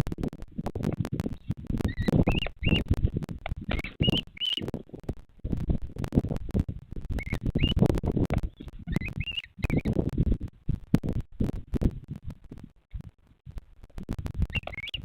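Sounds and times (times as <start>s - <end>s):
low rumbling and crackling noise: 0.0s - 15.0s
high chirping bird calls: 1.4s - 2.8s, 3.7s - 4.7s, 7.1s - 9.9s, 14.5s - 15.0s.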